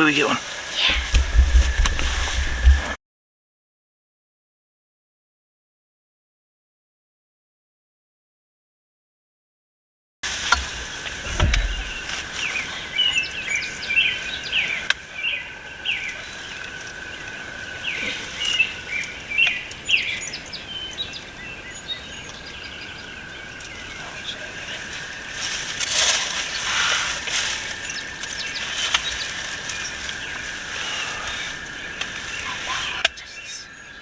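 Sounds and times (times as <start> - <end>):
rustling noise: 0.0 - 3.0, 10.2 - 13.4, 24.7 - 32.9
songbirds chirping and singing: 0.0 - 3.0, 10.3 - 34.0
low bump: 0.8 - 3.0, 10.5 - 12.7.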